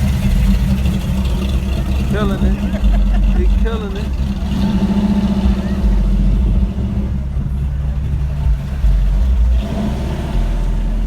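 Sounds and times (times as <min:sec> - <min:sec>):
cars rolling past: 0:00.0 - 0:11.0
deep low rumble: 0:00.0 - 0:11.0.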